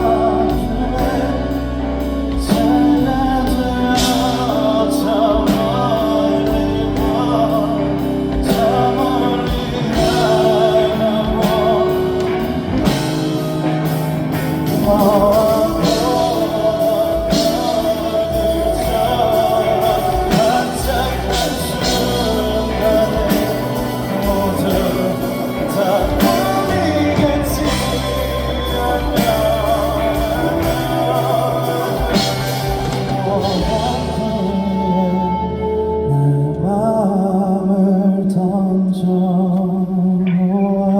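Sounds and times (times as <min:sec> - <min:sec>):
person singing sustained notes: 0:00.0 - 0:40.9
pop-rock band playing a ballad: 0:00.0 - 0:40.9.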